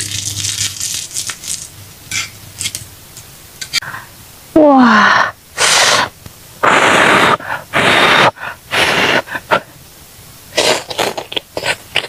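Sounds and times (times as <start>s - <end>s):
woman blowing hissing breaths: 4.9s - 9.5s.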